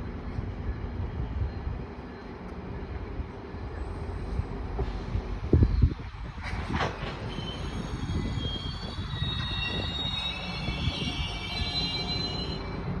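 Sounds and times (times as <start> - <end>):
train rumbling: 0.0 - 13.0
wheels and brakes squealing: 3.8 - 13.0.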